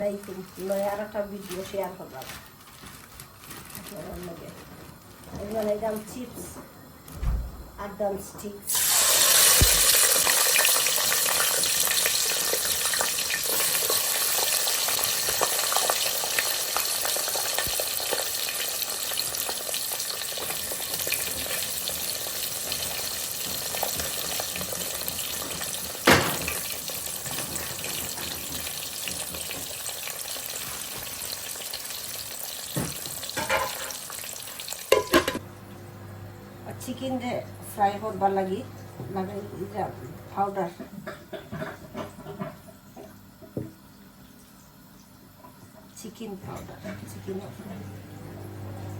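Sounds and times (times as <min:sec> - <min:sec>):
chips sizzling in hot oil: 0:08.7 - 0:35.4.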